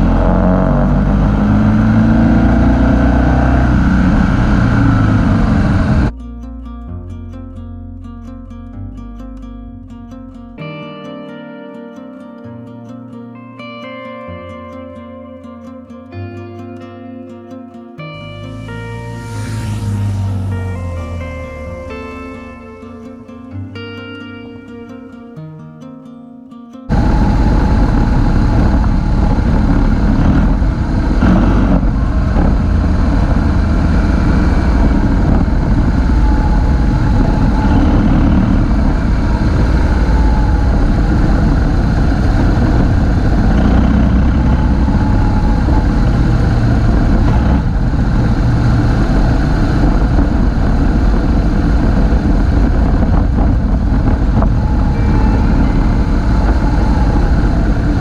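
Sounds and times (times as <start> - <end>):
motorcycle engine running: 0.0 - 6.2, 26.9 - 58.0
wind rush on microphone: 0.0 - 6.2, 18.2 - 23.4, 26.9 - 58.0.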